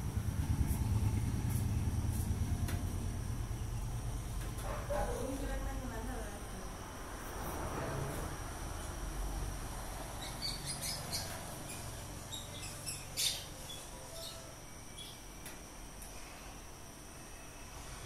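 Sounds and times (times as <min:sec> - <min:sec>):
small birds chirping: 0:10.0 - 0:15.3.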